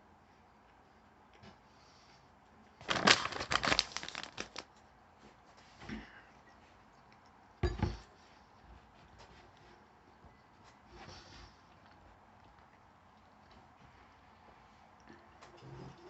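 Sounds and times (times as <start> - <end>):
paper wrapper crinkling: 2.8 - 4.7.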